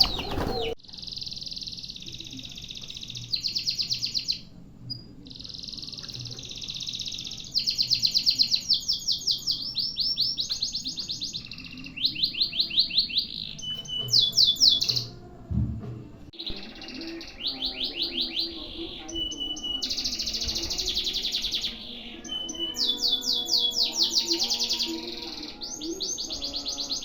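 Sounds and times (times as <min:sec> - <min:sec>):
canary trilling: 0:00.0 - 0:04.5, 0:05.2 - 0:15.2, 0:16.4 - 0:27.0
low thump: 0:15.5 - 0:16.3.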